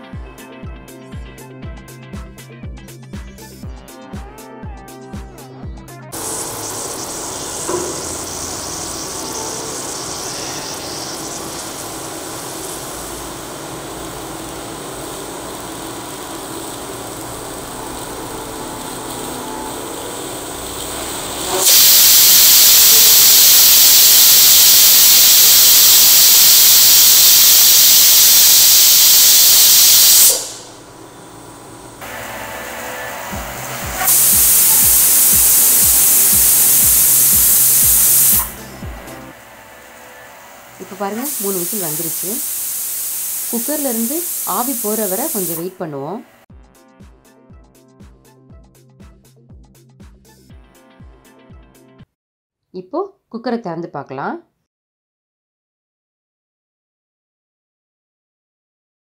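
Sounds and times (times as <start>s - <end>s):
pressure cooker whistle: 6.2s - 30.9s, 32.0s - 45.8s
pressure cooker hissing: 6.2s - 46.5s.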